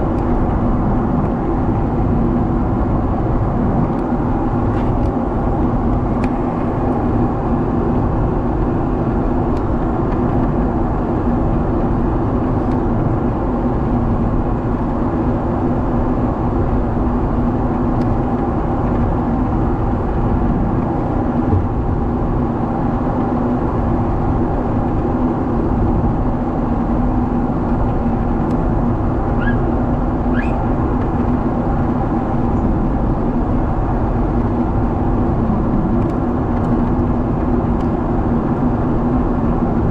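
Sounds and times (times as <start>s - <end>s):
jet engine and airflow drone: 0.0s - 39.9s
faint short squeaks: 29.4s - 29.7s, 30.3s - 30.7s.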